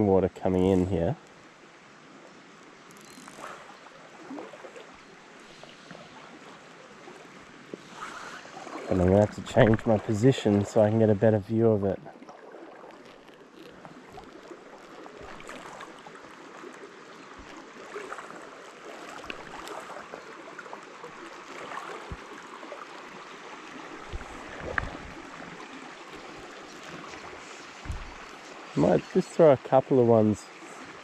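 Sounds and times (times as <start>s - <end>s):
stream gurgling over rocks: 0.0s - 31.0s
soft thumps: 27.8s - 28.4s.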